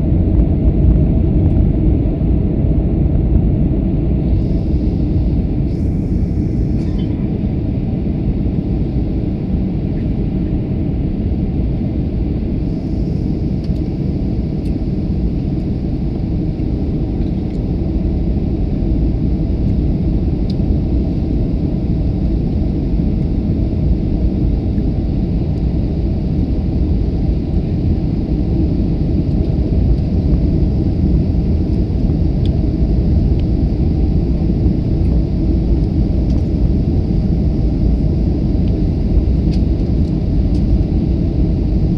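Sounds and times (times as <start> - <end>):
airliner cabin engine rumble: 0.0 - 41.9.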